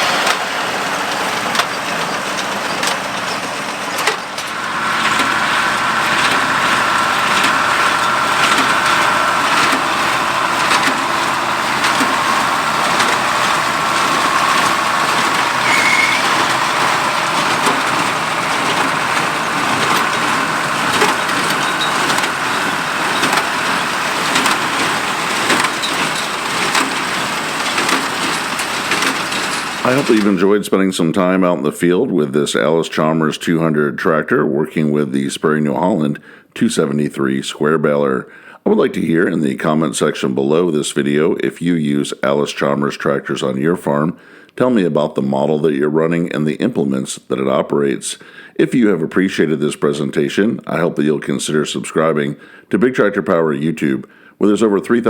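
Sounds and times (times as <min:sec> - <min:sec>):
tractor diesel engine running: 0:00.0 - 0:30.5.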